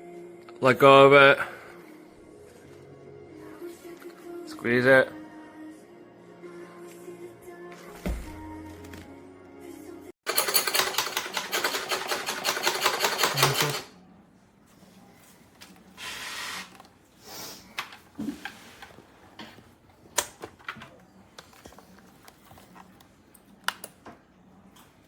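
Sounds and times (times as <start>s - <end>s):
fast mechanical clatter: 10.3s - 13.9s.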